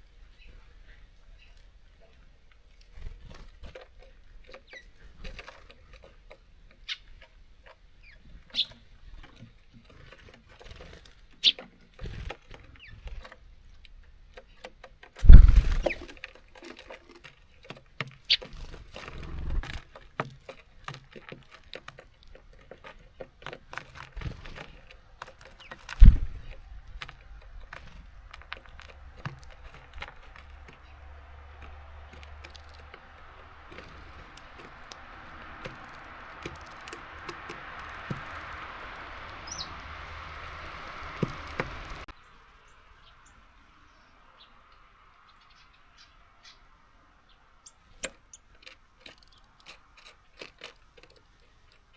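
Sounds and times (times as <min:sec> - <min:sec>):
birds pecking at feeder: 0:00.2 - 0:43.4, 0:47.6 - 0:51.9
heavy thumps: 0:26.0 - 0:26.5
steady hiss: 0:32.7 - 0:47.2
short bird chirps: 0:39.4 - 0:40.5.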